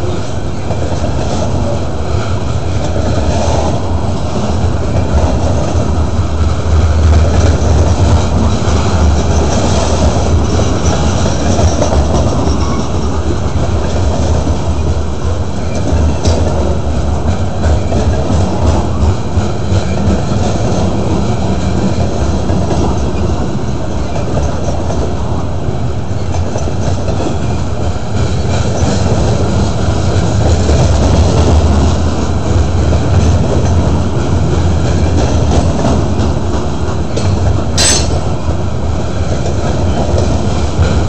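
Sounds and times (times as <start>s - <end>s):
freight train wheels rumbling: 0.0s - 41.0s.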